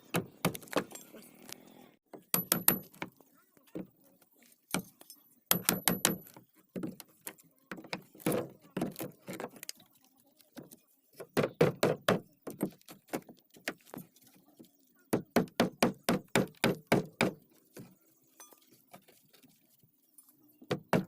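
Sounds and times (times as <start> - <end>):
hammering on wood: 2.2 - 3.1, 5.5 - 6.4, 11.2 - 12.7, 15.1 - 17.4, 20.7 - 21.0.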